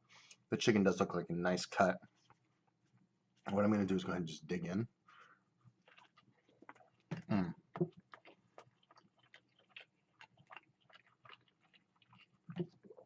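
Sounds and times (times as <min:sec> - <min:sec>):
crunching and chewing sandwich: 0:05.6 - 0:13.0.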